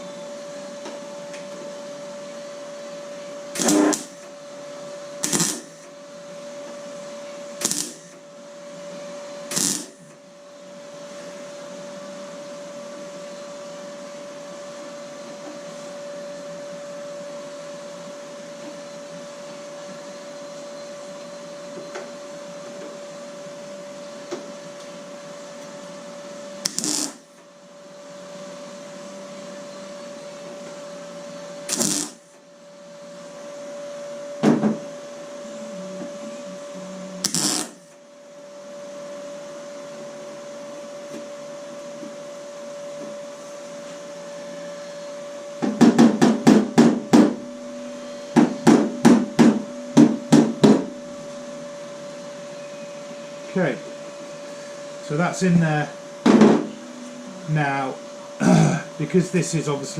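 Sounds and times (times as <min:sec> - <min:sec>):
machine hum: 0:00.0 - 0:59.9
short loud tool bursts: 0:03.6 - 0:04.2, 0:05.2 - 0:05.9, 0:07.6 - 0:08.2, 0:09.5 - 0:10.0, 0:26.6 - 0:27.3, 0:31.7 - 0:32.2, 0:37.2 - 0:37.8.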